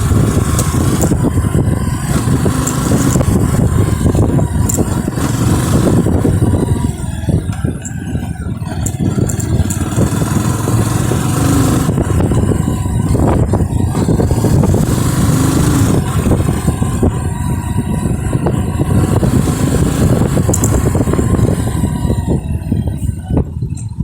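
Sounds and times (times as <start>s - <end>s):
small rattles and knocks: 0.0s - 14.9s, 19.0s - 21.6s
motorcycle engine running: 0.0s - 24.0s.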